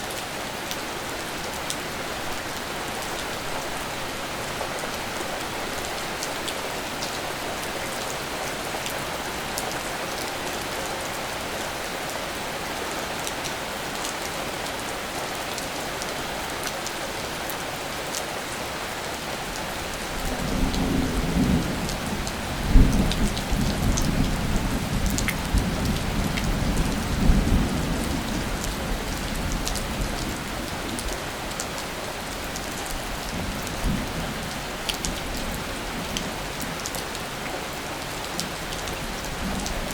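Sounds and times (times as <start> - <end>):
steady rain falling: 0.0 - 39.9
low rumble of thunder: 20.2 - 30.5.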